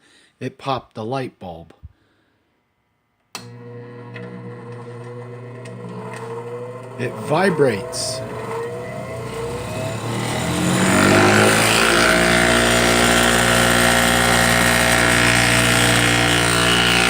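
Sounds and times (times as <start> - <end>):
bench grinder motor spinning: 3.4 - 17.0.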